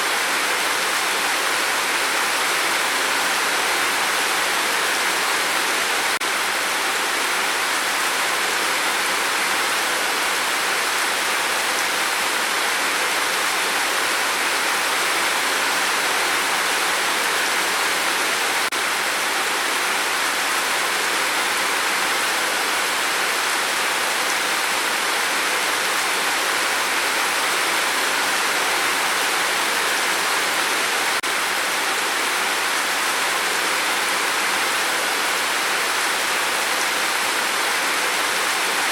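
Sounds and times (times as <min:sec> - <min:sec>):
rain on a tin roof: 0:00.0 - 0:38.9.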